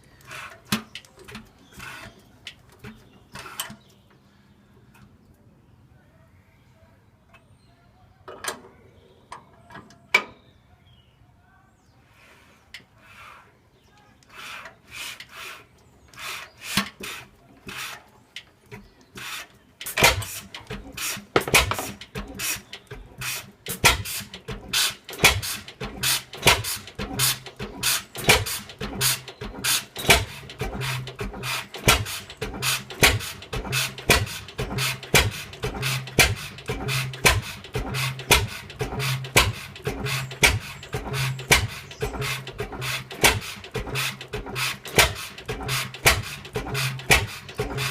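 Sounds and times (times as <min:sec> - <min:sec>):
stationary engine starting: 0:19.2 - 0:47.9.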